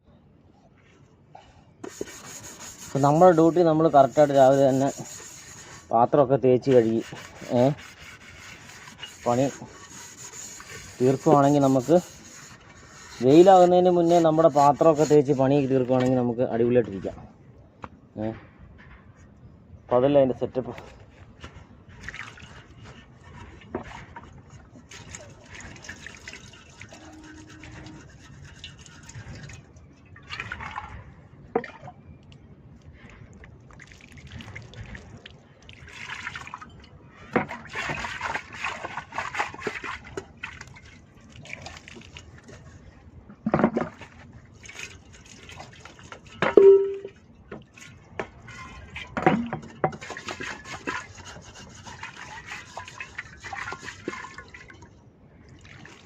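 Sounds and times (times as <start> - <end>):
metal pots being scrubbed: 1.8 - 16.0, 26.4 - 29.3, 48.4 - 54.5.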